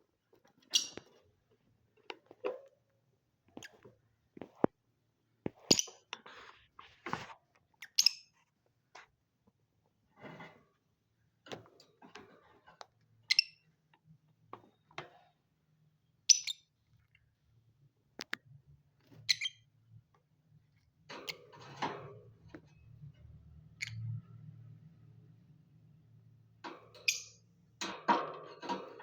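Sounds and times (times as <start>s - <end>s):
scratching and rustling: 5.4s - 7.5s.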